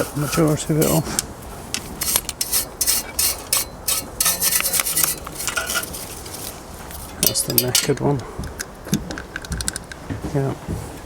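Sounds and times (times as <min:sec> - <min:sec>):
scraping on metal: 0:00.0 - 0:08.2.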